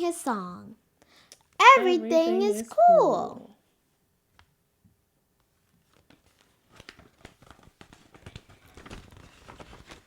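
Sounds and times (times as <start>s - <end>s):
picture book pages rustling: 5.6s - 10.0s.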